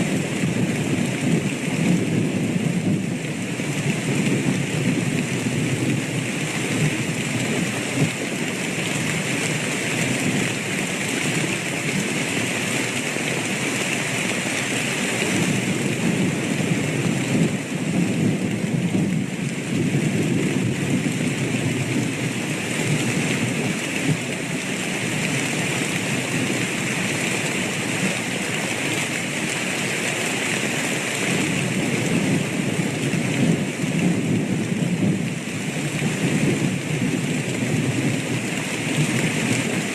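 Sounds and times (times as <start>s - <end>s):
heavy rain: 0.0s - 39.9s
rumble of thunder: 0.1s - 10.6s, 15.2s - 27.3s, 31.4s - 39.9s.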